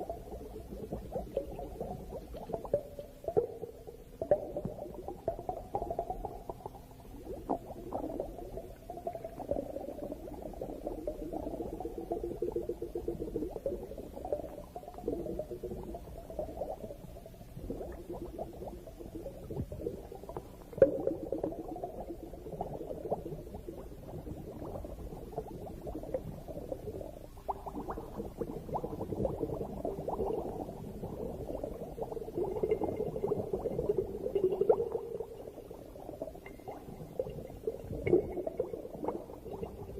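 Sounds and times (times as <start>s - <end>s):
underwater bubbling and gurgling: 0.0s - 39.9s.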